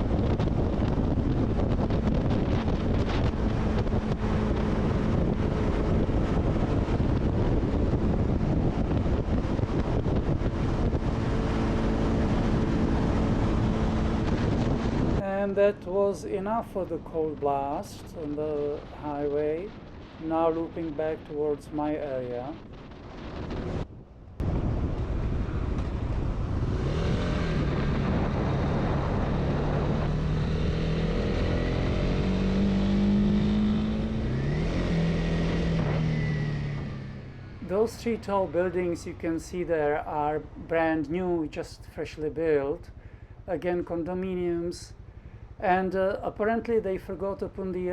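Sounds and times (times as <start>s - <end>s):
motorcycle engine running: 0.0s - 15.2s
motorcycle engine humming: 0.0s - 17.4s, 22.6s - 40.6s, 42.8s - 46.1s
wind rushing over microphone: 0.0s - 47.9s.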